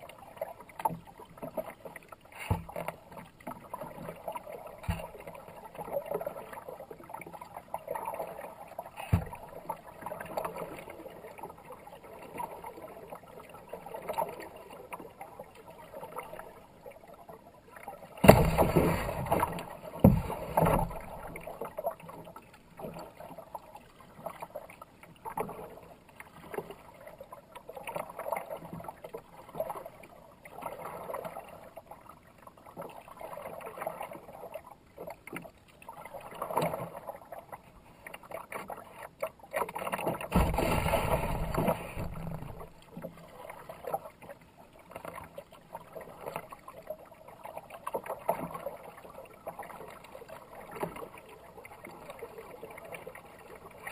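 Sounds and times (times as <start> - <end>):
fast river water: 0.0 - 53.9
paddle strokes splashing: 17.8 - 24.8, 35.0 - 53.9.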